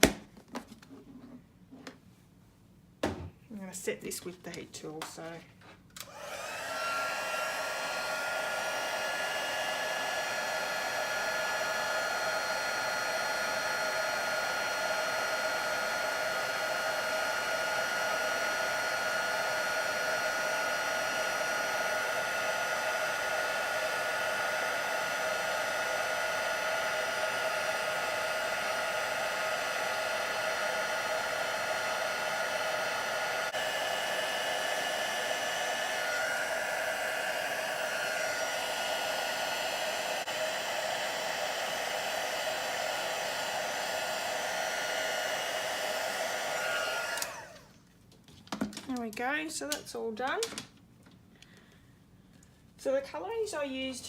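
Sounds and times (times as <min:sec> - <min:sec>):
heat tool blower whining: 0:06.0 - 0:47.8.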